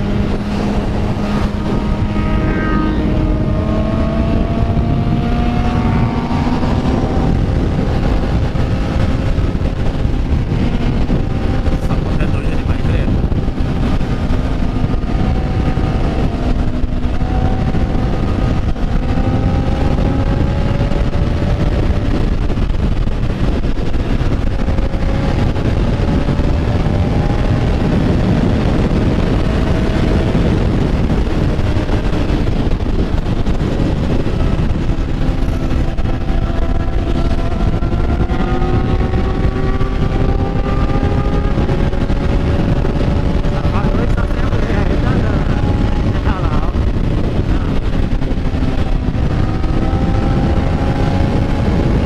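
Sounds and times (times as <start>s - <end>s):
motorcycle engine accelerating: 0.0s - 52.0s
wind rush on microphone: 0.0s - 52.0s.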